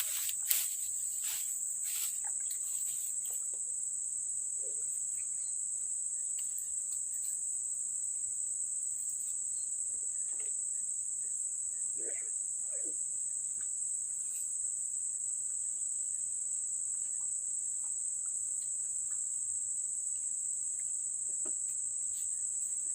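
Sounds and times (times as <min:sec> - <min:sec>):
insects chirping: 0:00.0 - 0:22.9.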